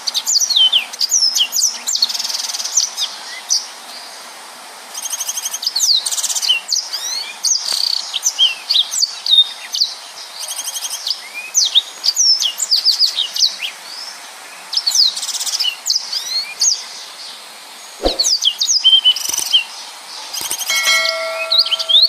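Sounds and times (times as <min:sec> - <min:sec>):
canary singing whistles and trills: 0:20.3 - 0:22.0.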